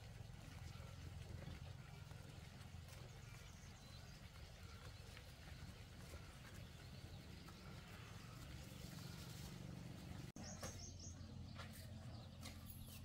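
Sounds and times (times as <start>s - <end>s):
low outdoor rumble: 0.0s - 13.0s
small bird chirps: 10.4s - 13.0s.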